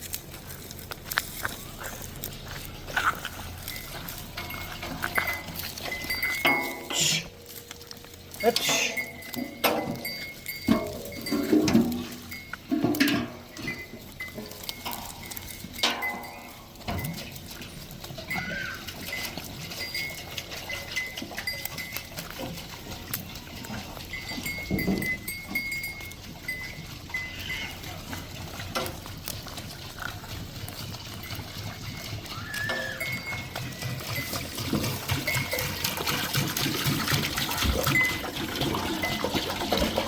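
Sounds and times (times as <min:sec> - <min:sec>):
goat bells clinking: 0:00.0 - 0:40.0
goat bleating: 0:27.1 - 0:28.1.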